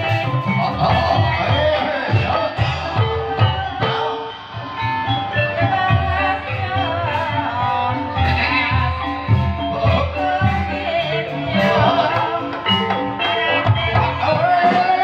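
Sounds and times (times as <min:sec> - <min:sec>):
low drum beat: 0:00.0 - 0:04.0, 0:05.6 - 0:15.0
person singing: 0:00.0 - 0:15.0.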